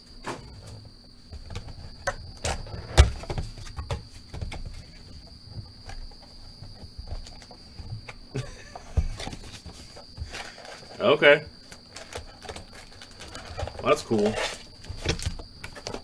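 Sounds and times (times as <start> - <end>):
clicks taps and rustles: 0.4 - 11.0, 11.6 - 16.0
card packs being opened: 11.7 - 16.0.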